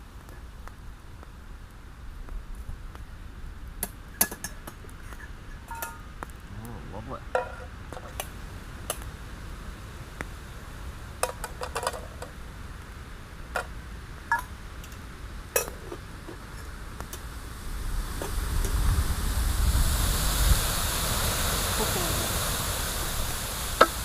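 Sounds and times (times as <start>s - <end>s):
metal cookware clinking: 5.7s - 6.0s, 7.3s - 7.7s
rushing noise: 16.5s - 24.0s.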